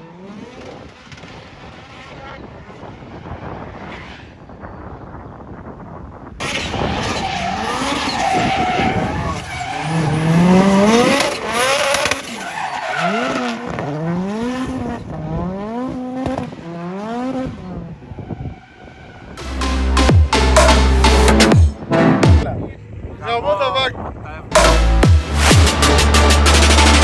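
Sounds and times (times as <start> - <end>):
car engine revving hard: 0.0 - 4.0, 6.4 - 22.4, 24.5 - 27.0
tyres squealing: 6.4 - 14.0.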